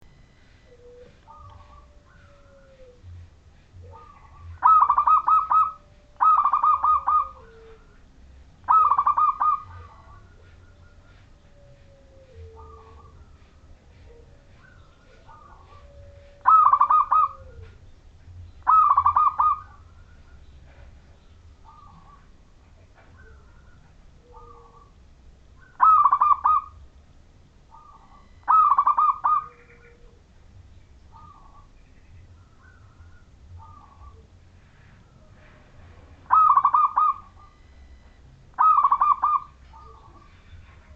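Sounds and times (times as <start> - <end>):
dove cooing: 0.0 - 26.9, 27.7 - 30.4, 31.1 - 31.8, 32.4 - 40.9.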